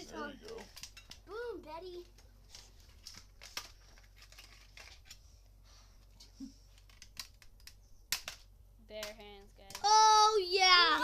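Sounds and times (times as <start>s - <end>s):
metal sheet crinkling: 1.9s - 5.2s.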